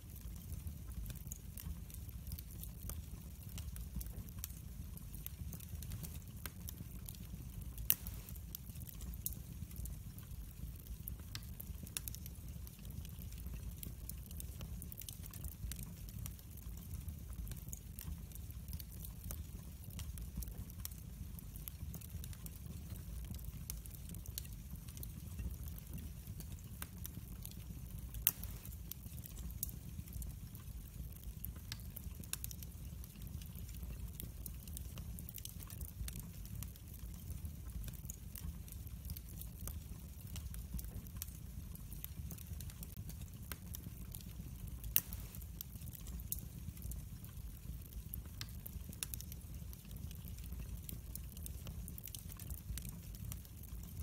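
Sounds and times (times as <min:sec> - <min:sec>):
fire crackling and popping: 0:00.0 - 0:54.0
fire flames rumbling: 0:00.0 - 0:54.0.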